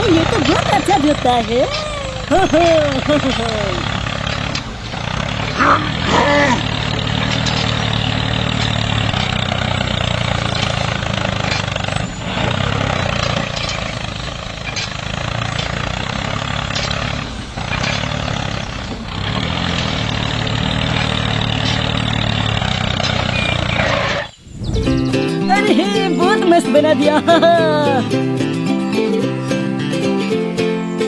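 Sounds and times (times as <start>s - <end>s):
toy tractor engine drone: 0.0s - 24.4s.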